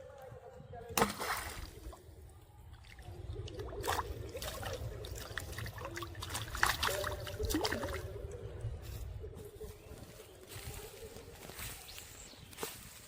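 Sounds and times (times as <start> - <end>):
small sharp splashes: 0.9 - 2.0, 2.7 - 8.2
water trickling: 2.7 - 8.6.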